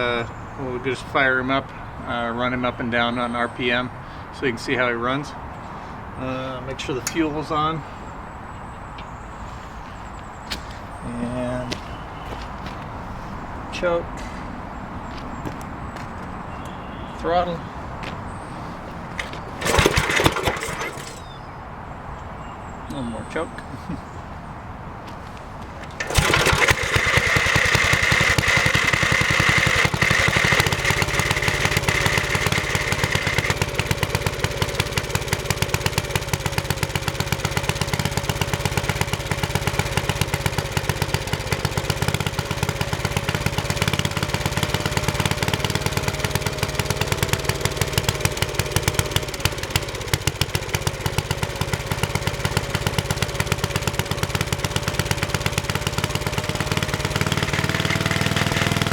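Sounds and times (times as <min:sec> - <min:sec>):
small engine starting and running: 0:19.2 - 0:21.5, 0:25.8 - 0:58.9.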